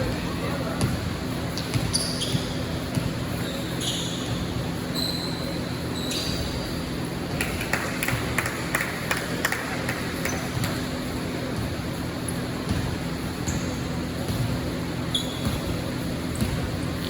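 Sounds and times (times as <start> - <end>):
basketball bouncing: 0.2 - 3.4, 7.3 - 11.0, 12.6 - 16.9
shoe squeaks on court: 1.5 - 6.8, 15.0 - 16.5.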